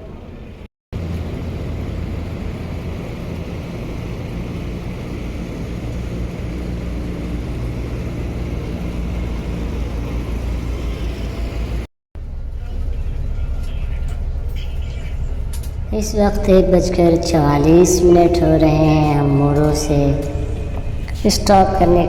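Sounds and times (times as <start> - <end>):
bus engine running: 0.0 - 22.0
tyre and road noise: 0.2 - 22.0.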